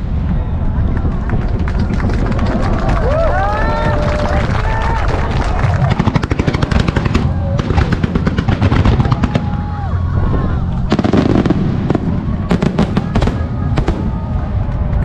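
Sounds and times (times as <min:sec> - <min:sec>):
fireworks booming: 0:00.0 - 0:04.2, 0:05.4 - 0:15.0
fireworks crackling: 0:00.0 - 0:15.0
fireworks whistling: 0:06.4 - 0:14.3.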